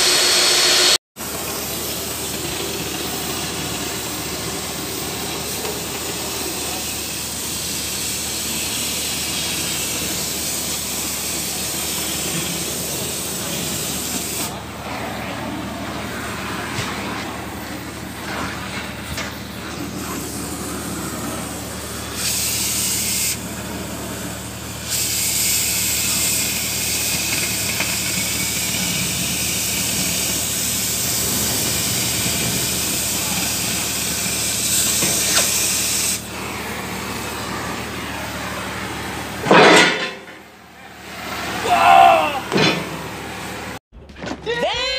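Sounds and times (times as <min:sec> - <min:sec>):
pressurized jet hissing: 0:00.0 - 0:14.8, 0:18.9 - 0:23.5, 0:24.8 - 0:39.4.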